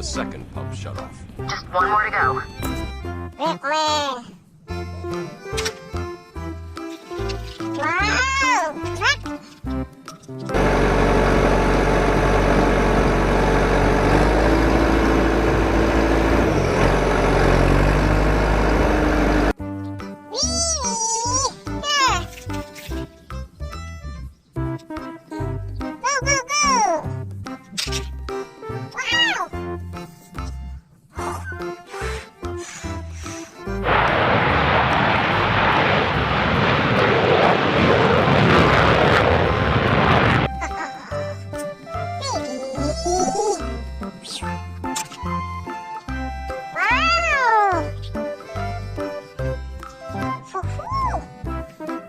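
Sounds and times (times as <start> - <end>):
truck engine running: 10.5 - 19.6.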